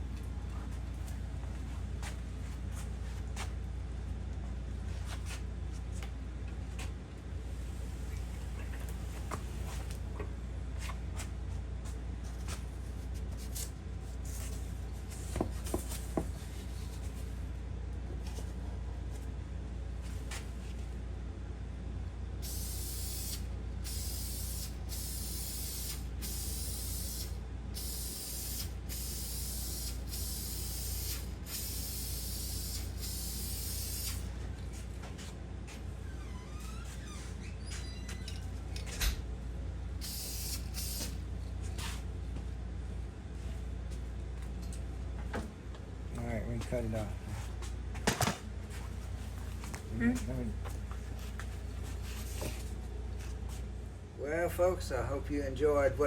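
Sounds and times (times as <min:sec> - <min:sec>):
steady low hum: 0:00.0 - 0:56.0
hissing spray bursts: 0:22.4 - 0:34.2, 0:40.0 - 0:41.2.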